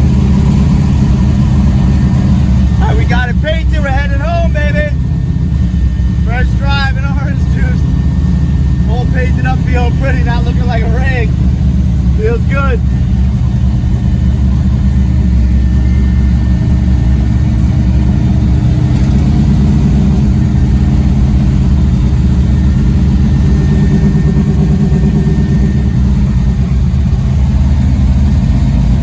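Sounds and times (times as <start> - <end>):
car engine cruising: 0.0 - 29.0
road noise: 0.0 - 29.0.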